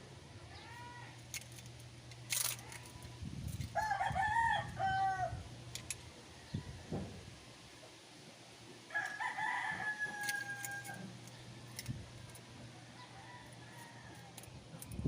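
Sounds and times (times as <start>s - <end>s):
rooster crowing: 3.7s - 5.5s, 8.9s - 11.2s, 12.8s - 14.5s.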